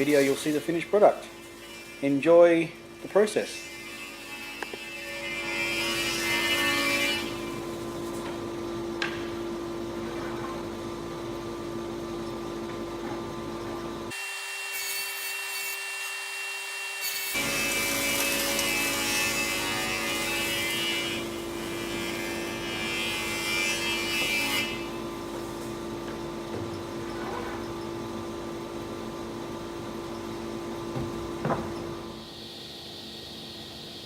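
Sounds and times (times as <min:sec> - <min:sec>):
planer cutting hiss: 0:00.0 - 0:03.8, 0:14.1 - 0:27.7
thickness planer humming: 0:00.0 - 0:10.8, 0:12.6 - 0:32.2.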